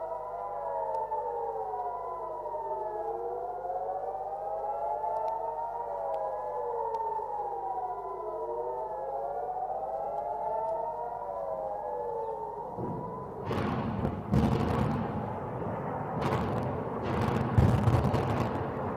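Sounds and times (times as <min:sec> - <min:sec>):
air-raid sirens wailing: 0:00.0 - 0:18.9.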